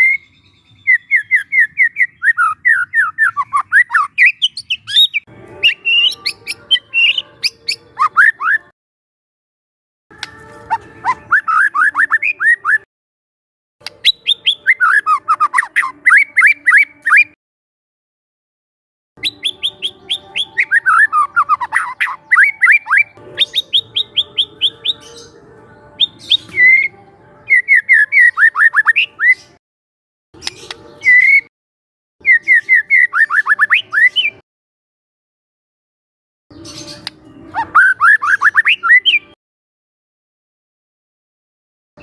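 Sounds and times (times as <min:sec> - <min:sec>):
bird whistling sharp notes: 0:00.0 - 0:08.7, 0:10.2 - 0:12.8, 0:14.0 - 0:17.3, 0:19.2 - 0:25.3, 0:26.0 - 0:26.9, 0:27.5 - 0:29.4, 0:30.4 - 0:31.5, 0:32.2 - 0:34.4, 0:36.6 - 0:39.3.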